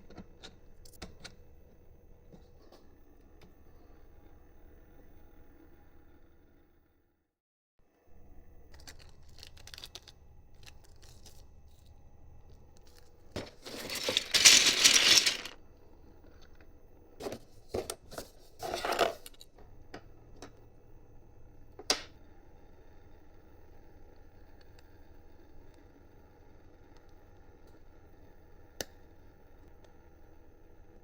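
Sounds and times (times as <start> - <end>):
small clicks of parts: 8.7 - 11.9.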